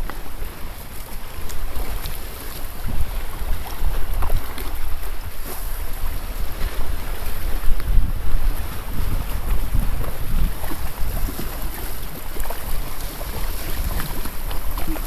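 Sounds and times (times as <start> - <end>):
sea water washing: 0.0 - 15.0
wind buffeting microphone: 0.0 - 15.0
knocks and splashes: 8.5 - 15.0.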